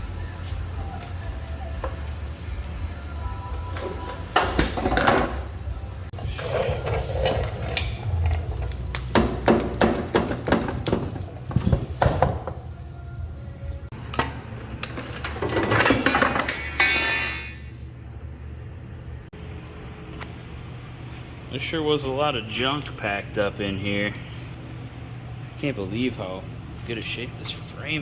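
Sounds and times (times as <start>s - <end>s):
metal parts clanking: 14.1s - 17.8s
steady low hum: 16.6s - 28.0s.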